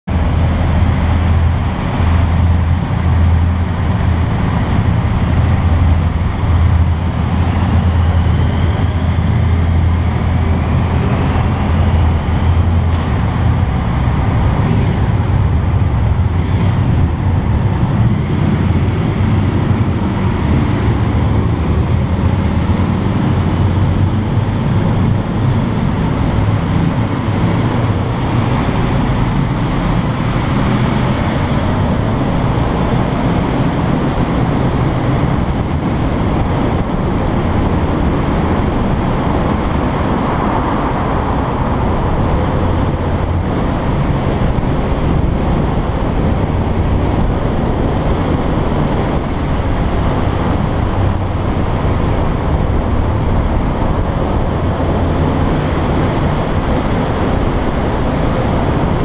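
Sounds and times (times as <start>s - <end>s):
road noise: 0.0s - 59.0s.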